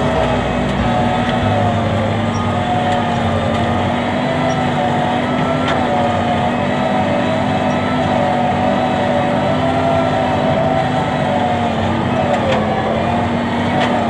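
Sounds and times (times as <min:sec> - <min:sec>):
tractor diesel engine droning: 0:00.0 - 0:14.0.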